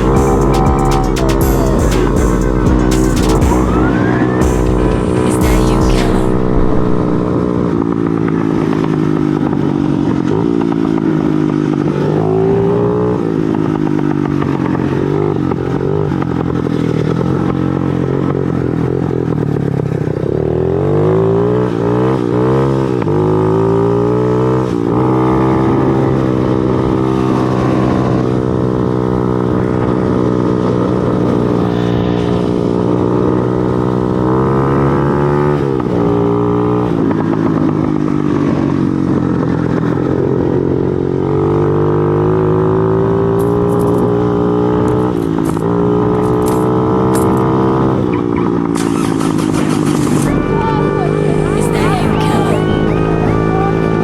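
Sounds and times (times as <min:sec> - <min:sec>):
motorcycle engine running: 0:00.0 - 0:20.9.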